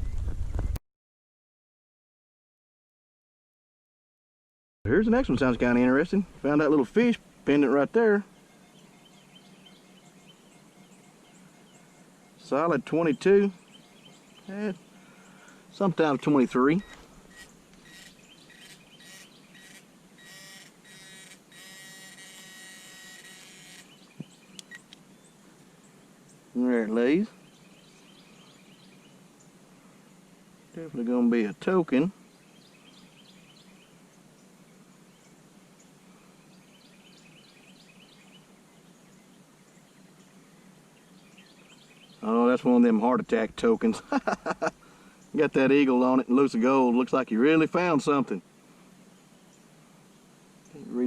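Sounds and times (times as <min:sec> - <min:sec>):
birds chirping: 0:04.9 - 0:51.0
metal detector beeping: 0:16.7 - 0:24.0.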